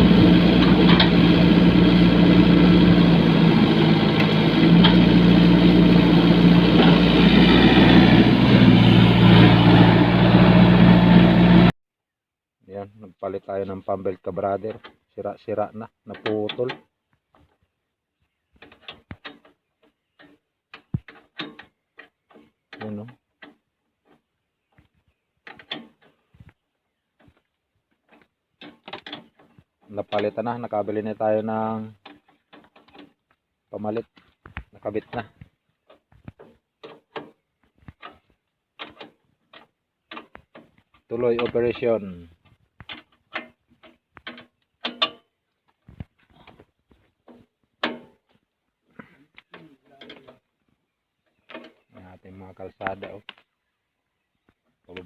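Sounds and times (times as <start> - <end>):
heavy equipment engine humming: 0.0 - 11.7
light mechanical clicks and knocks: 16.1 - 17.5, 18.6 - 24.2, 25.4 - 26.6, 27.2 - 30.6, 31.9 - 33.3, 34.1 - 41.7, 42.4 - 45.3, 45.9 - 48.4, 49.4 - 50.5.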